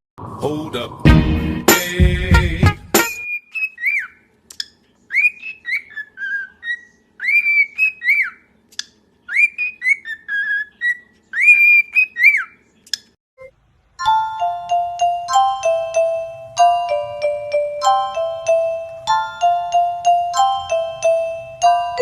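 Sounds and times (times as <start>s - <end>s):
pet bird whistling: 3.2s - 4.2s, 5.1s - 8.4s, 9.3s - 12.6s
chiming glockenspiel-like music: 14.0s - 22.0s.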